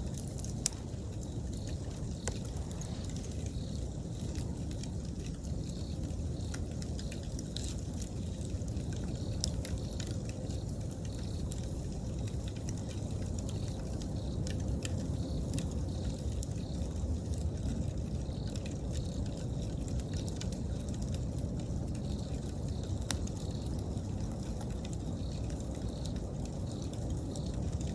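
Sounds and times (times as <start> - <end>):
campfire crackling and popping: 0.0 - 27.9
insects chirping: 0.0 - 27.9.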